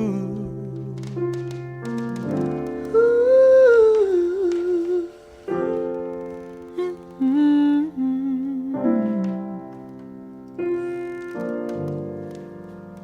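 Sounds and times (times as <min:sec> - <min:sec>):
person humming: 0:00.0 - 0:01.2, 0:02.9 - 0:05.2, 0:06.7 - 0:09.4.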